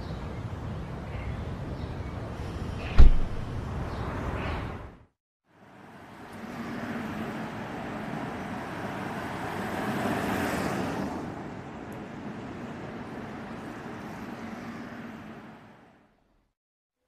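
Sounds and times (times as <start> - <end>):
rumble of passing vehicles: 0.0 - 16.6.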